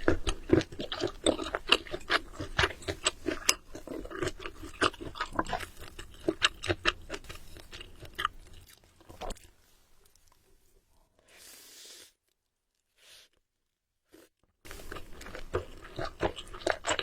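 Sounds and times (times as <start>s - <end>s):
chewing food: 0.0s - 10.5s, 14.1s - 17.0s.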